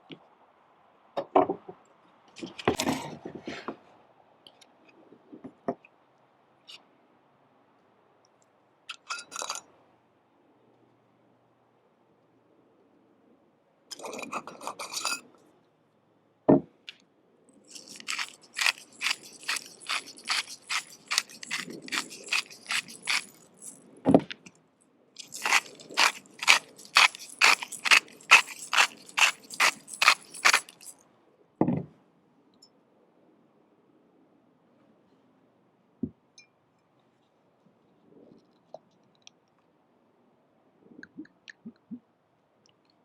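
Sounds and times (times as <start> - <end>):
short rattle: 17.7 - 23.8, 25.2 - 30.9
knife cutting on a board: 17.8 - 23.4, 25.2 - 30.9.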